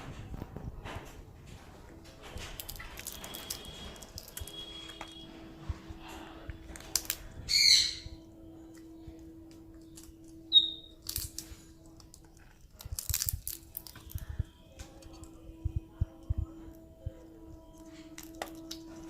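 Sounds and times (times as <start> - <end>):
faint steady hum: 0.0 - 19.0
parrot squawk: 7.5 - 8.1.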